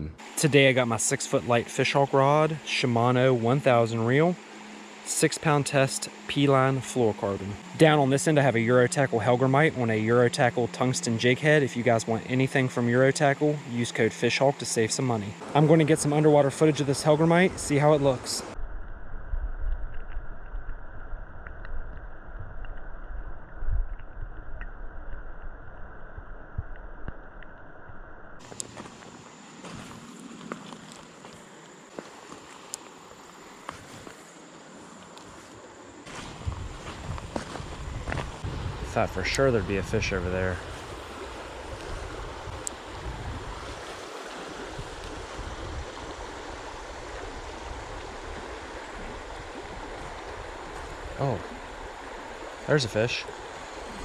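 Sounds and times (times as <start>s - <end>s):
muffled underwater creek current: 0.2s - 54.0s
faint underwater clicks: 19.6s - 28.8s, 30.5s - 33.0s, 40.7s - 43.0s.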